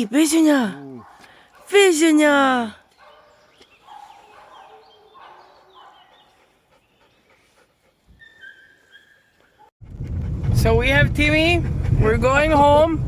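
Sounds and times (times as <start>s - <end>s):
dog whining and yelping: 8.1s - 9.7s.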